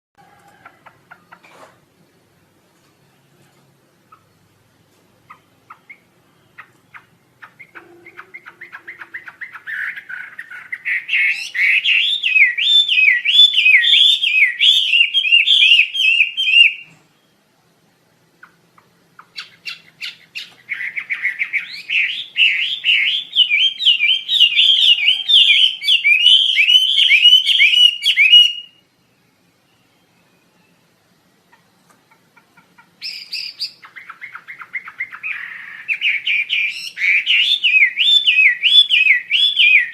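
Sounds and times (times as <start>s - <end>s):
songbird trilling: 5.3s - 16.9s, 19.2s - 28.8s, 32.8s - 39.9s.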